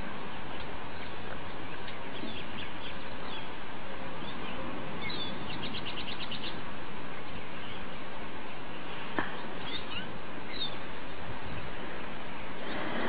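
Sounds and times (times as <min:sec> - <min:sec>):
background hiss: 0:00.0 - 0:13.0
small birds chirping: 0:00.0 - 0:13.0
bird trill: 0:04.2 - 0:06.6, 0:09.6 - 0:10.8.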